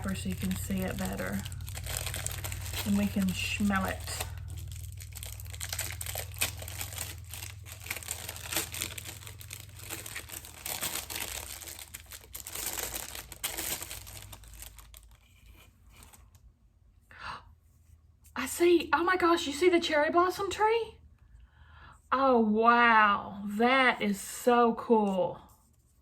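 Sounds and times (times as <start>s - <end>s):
soap wrapper crackly rustling: 0.0s - 16.4s.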